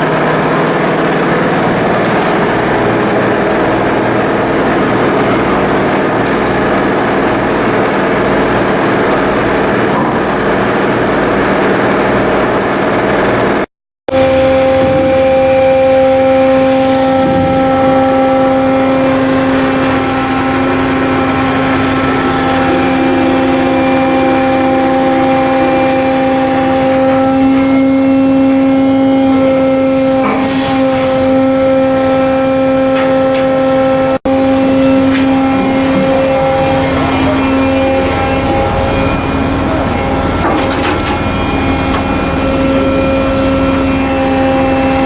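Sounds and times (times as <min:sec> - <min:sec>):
machinery droning hum: 0:00.0 - 0:45.0.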